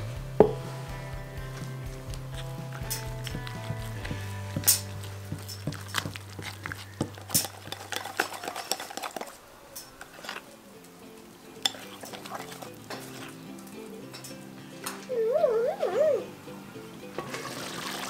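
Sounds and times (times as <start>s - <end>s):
faint background music: 0.0s - 18.0s
whisk scraping a ceramic bowl: 2.3s - 9.4s, 10.0s - 10.4s, 11.6s - 13.3s.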